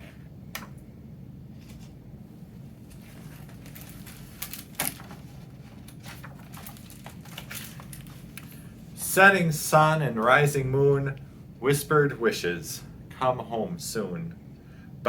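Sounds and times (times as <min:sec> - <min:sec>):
low room hum: 0:00.0 - 0:15.0
book pages rustling: 0:01.6 - 0:02.0, 0:02.8 - 0:08.7.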